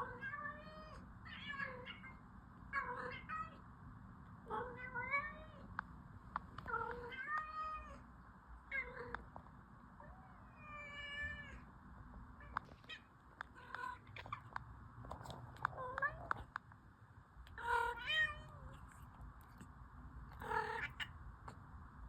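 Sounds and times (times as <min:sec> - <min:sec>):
faint clicks: 0:12.5 - 0:16.8
cat meowing: 0:17.6 - 0:18.9, 0:20.3 - 0:21.1.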